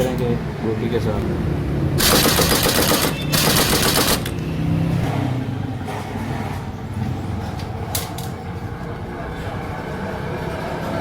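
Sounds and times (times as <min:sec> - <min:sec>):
impact wrench hammering: 0:02.0 - 0:04.4.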